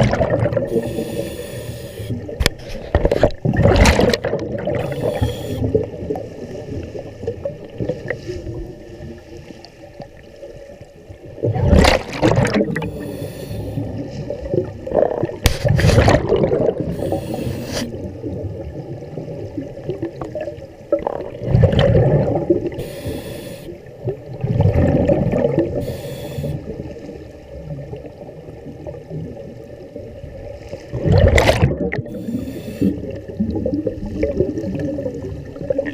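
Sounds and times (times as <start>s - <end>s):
exhaled bubbles bursting: 0.0s - 1.1s, 2.2s - 6.3s, 11.4s - 13.0s, 13.7s - 22.8s, 24.0s - 25.8s, 30.9s - 35.9s
hissing regulator inhales: 0.7s - 2.2s, 4.8s - 5.7s, 12.8s - 13.8s, 16.9s - 17.9s, 22.8s - 23.7s, 25.8s - 26.6s, 32.1s - 33.0s.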